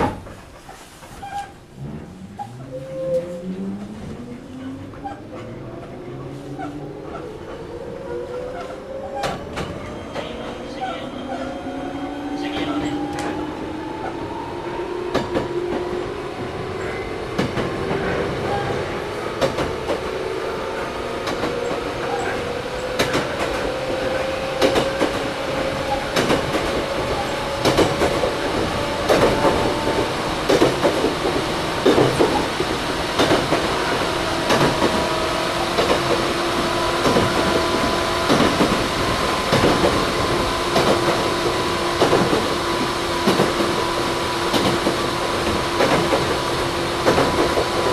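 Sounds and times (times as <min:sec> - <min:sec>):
wheels clacking over rail joints: 0:15.0 - 0:47.9.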